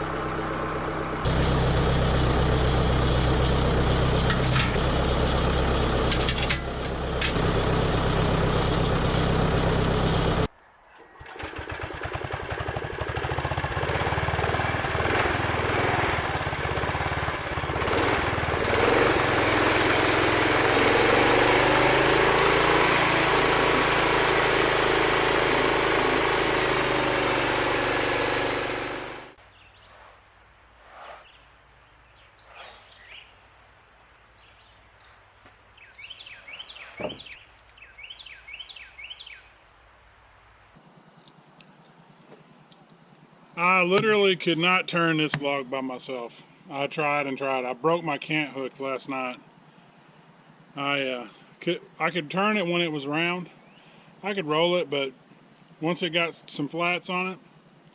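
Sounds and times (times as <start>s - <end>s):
sawmill engine running under load: 0.0s - 10.5s, 11.2s - 29.4s.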